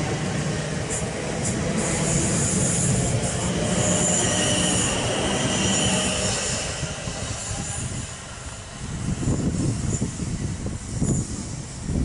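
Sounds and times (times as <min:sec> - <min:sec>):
high-pitched train squeal: 0:00.0 - 0:12.0
train wheels rumbling on rails: 0:00.0 - 0:12.0.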